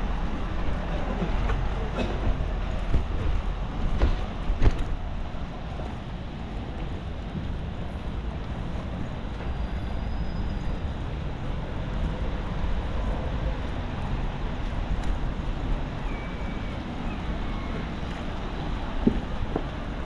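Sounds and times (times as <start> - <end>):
passing road traffic rumble: 0.0 - 20.0.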